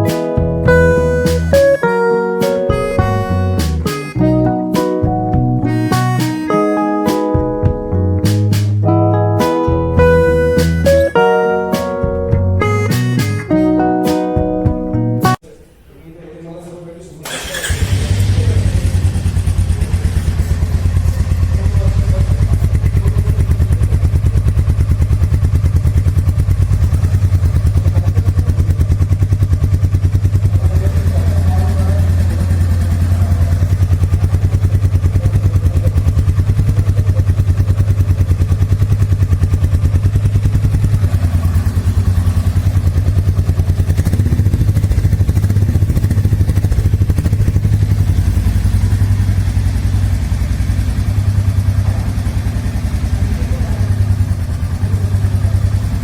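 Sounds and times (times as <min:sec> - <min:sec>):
motorcycle engine idling: 0:17.2 - 0:56.0.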